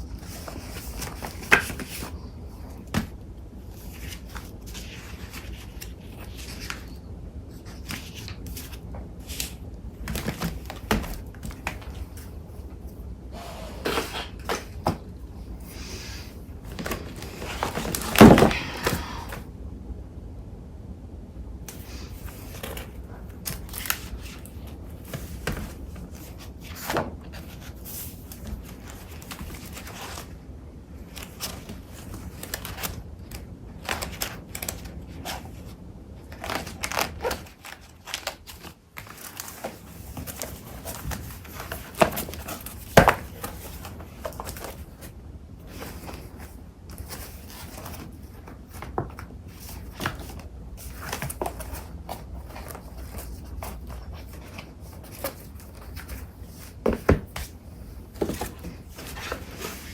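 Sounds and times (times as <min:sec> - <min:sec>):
paper rustling and crinkling: 0:00.0 - 0:13.0, 0:15.7 - 0:19.0, 0:21.7 - 0:30.4, 0:31.0 - 0:59.9.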